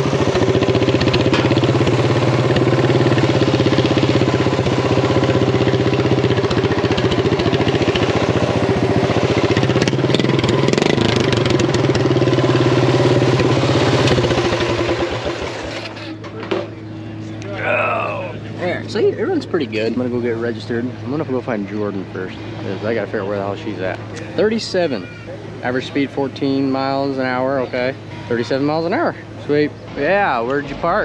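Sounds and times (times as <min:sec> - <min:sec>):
lawn-mower engine running: 0:00.0 - 0:31.0.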